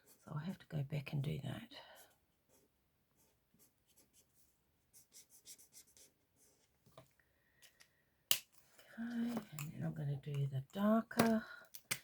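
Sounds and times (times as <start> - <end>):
marker scratching on cardstock: 3.2 - 6.2.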